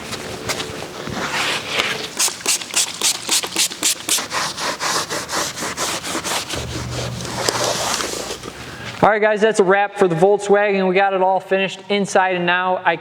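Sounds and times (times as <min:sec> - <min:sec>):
hand scrubbing strokes: 0:01.1 - 0:08.9
faint low hum: 0:06.4 - 0:09.1.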